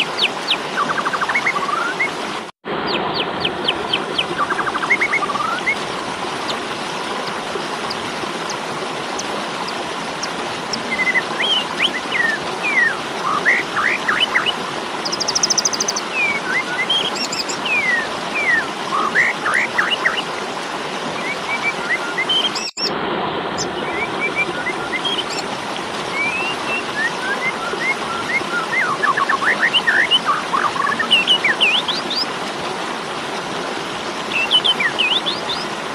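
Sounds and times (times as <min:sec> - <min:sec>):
starling whistled calls: 0:10.9 - 0:19.3, 0:22.2 - 0:22.9.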